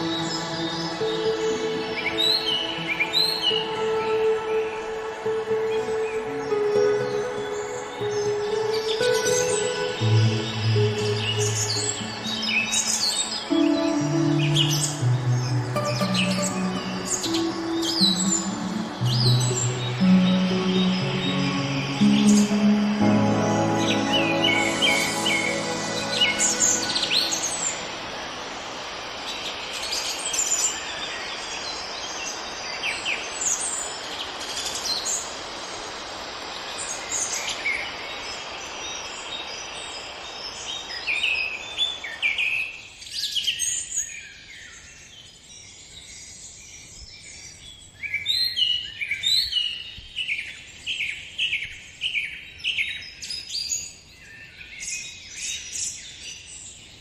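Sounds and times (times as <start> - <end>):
steady rushing hiss: 0.0 - 31.0
small birds chirping and singing: 0.0 - 36.0, 36.6 - 57.0.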